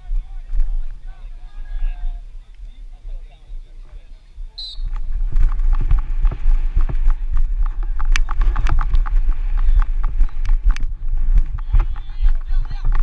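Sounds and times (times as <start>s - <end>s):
steady low rumble: 0.0s - 13.0s
rapid irregular knocks and clatter: 5.2s - 13.0s.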